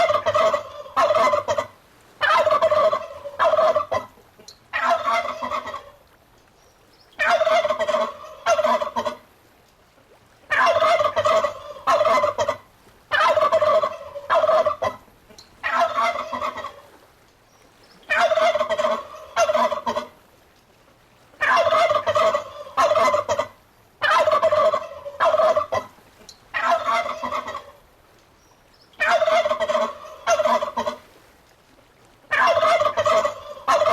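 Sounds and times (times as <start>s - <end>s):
turkey gobbling: 0.0s - 6.0s, 7.2s - 9.2s, 10.5s - 16.9s, 18.1s - 20.1s, 21.4s - 27.8s, 29.0s - 31.0s, 32.3s - 33.9s.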